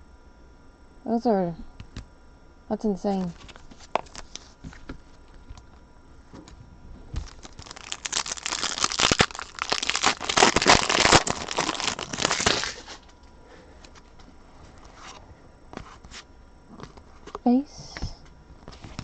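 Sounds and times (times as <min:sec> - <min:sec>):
foil wrapper crinkling and tearing: 0:03.4 - 0:04.6, 0:07.2 - 0:13.1.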